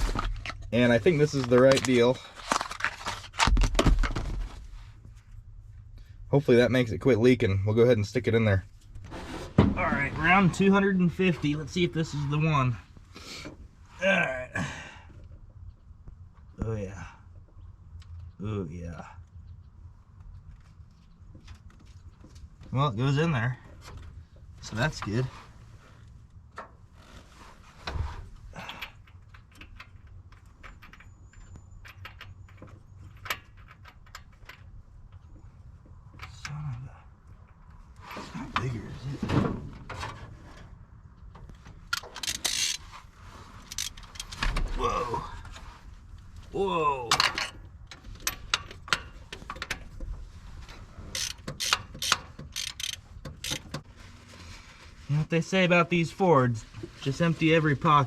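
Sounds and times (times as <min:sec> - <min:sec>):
hand tools clicking on metal: 0:41.9 - 0:42.8, 0:43.7 - 0:44.4, 0:51.1 - 0:53.8.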